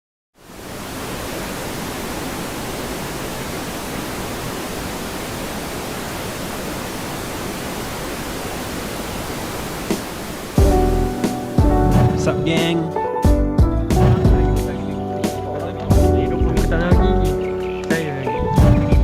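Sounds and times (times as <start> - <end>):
waterfall rushing: 0.4 - 12.7, 14.0 - 14.8.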